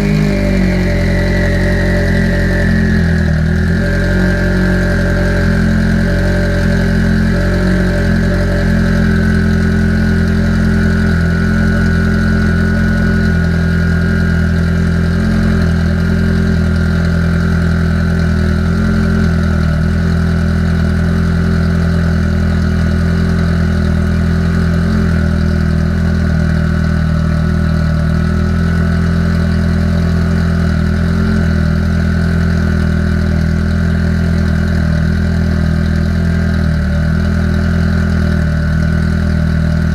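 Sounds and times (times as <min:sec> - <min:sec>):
thin steady whine: 0:00.0 - 0:22.2
car engine idling: 0:00.0 - 0:39.9.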